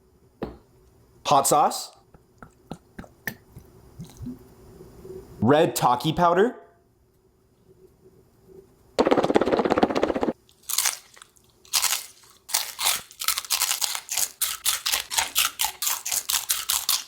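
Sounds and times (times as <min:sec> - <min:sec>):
person crunching chips: 0:10.5 - 0:17.0.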